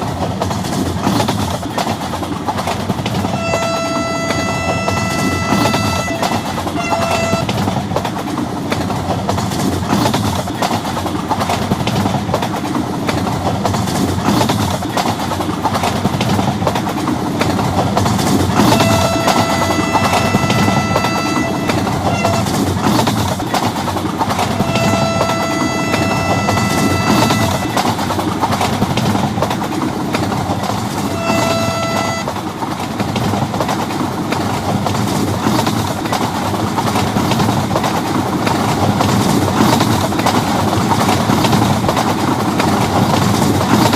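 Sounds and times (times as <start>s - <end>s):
train rumbling on track: 0.0s - 43.9s
train horn blasts: 3.3s - 7.6s, 18.6s - 22.6s, 24.6s - 27.9s, 31.0s - 32.4s.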